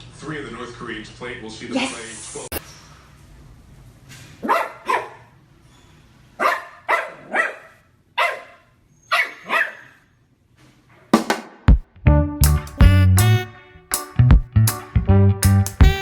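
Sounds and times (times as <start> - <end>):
dog barking: 4.4 - 5.3, 6.4 - 10.1.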